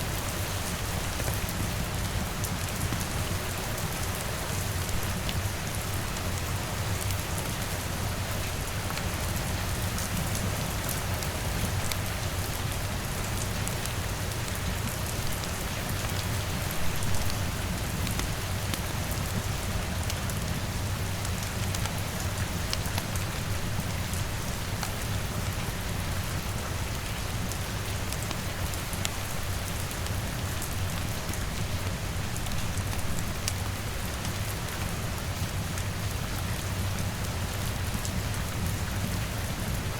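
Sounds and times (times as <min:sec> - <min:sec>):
rain on a window: 0:00.0 - 0:39.9.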